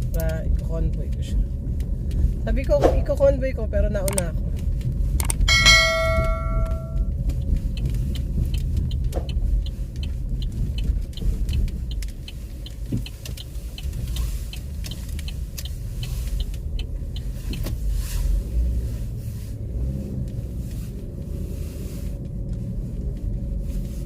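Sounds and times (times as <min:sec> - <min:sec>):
car engine rumble inside cabin: 0:00.0 - 0:24.0
light regular ticking: 0:04.0 - 0:17.6.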